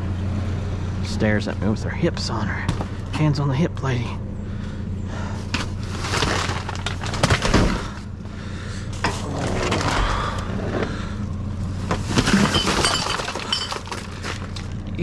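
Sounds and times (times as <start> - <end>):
truck engine running: 0.0 - 15.0
rustling and clattering: 5.5 - 8.1, 11.7 - 14.9.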